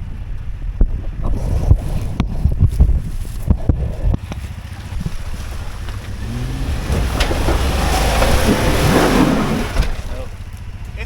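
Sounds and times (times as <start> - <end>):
suv engine revving: 3.5 - 10.6.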